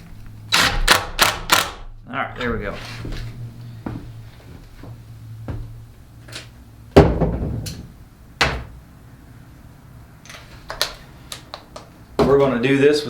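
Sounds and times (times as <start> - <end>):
hard knocks and clunks: 7.0 - 7.8.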